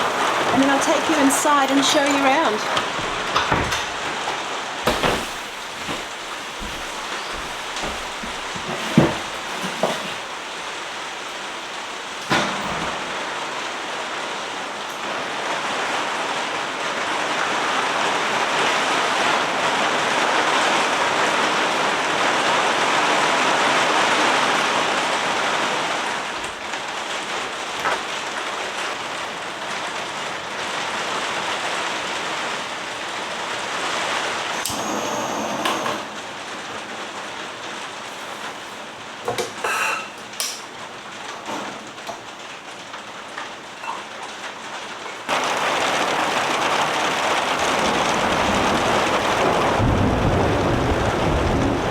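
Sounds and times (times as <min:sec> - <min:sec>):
heavy rain: 0:00.0 - 0:51.9
sharp knocks: 0:01.7 - 0:10.3.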